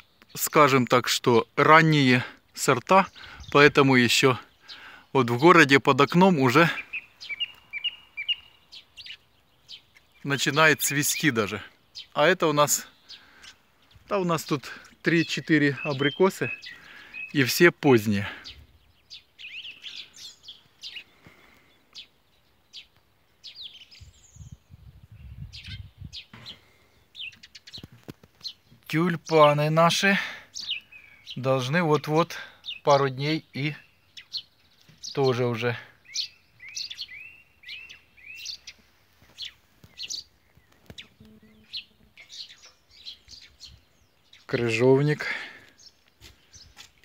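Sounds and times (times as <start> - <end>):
songbirds chirping: 0.0 - 47.0
bird trill: 6.1 - 12.2, 15.2 - 17.6, 18.4 - 21.2, 30.5 - 44.9.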